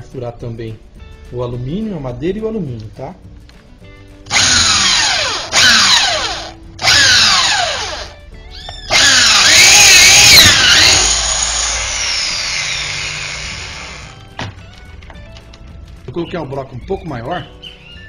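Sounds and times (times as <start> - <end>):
electric drill boring through wood: 4.3 - 8.2, 8.8 - 14.3.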